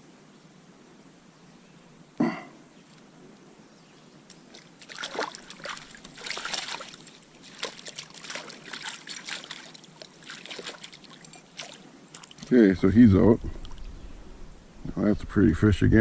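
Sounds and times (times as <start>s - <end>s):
fish splashing in water: 4.5s - 12.4s.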